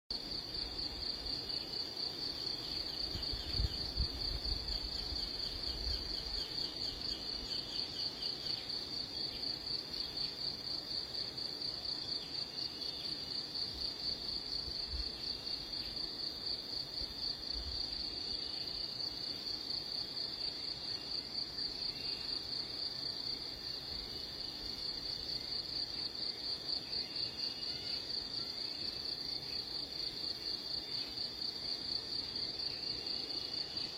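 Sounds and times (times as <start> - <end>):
insect trilling: 27.2 - 28.7.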